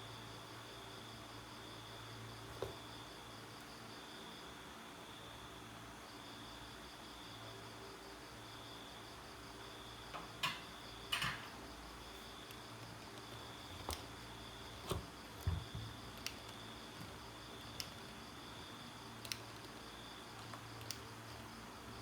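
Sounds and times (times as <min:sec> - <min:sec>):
small tools clicking and knocking: 0:10.2 - 0:11.6.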